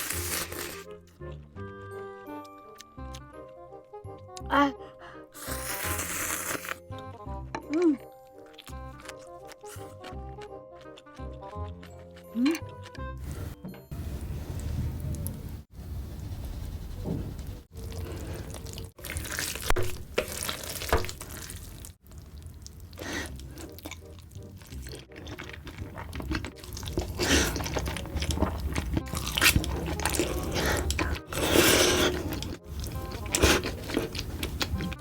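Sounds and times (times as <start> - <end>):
noodle slurping: 5.4 - 6.8, 22.9 - 35.0.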